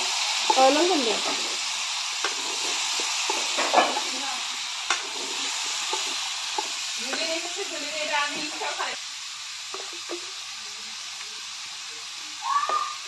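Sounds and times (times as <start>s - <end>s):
food sizzling in a pan: 0.0s - 13.0s
metal spoon scraping a pan: 2.2s - 4.3s.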